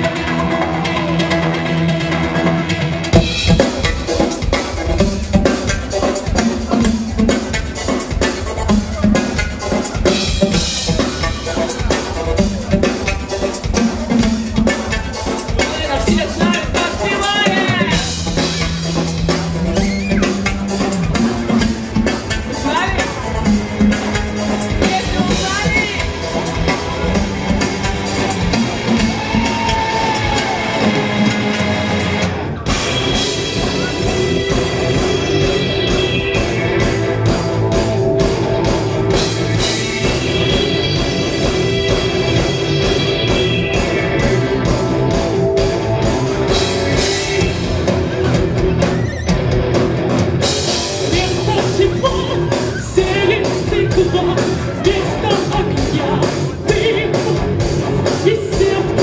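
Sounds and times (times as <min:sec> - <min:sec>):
rock band playing: 0:00.0 - 0:59.0
steady drum beat: 0:00.0 - 0:59.0
person singing: 0:51.1 - 0:57.4.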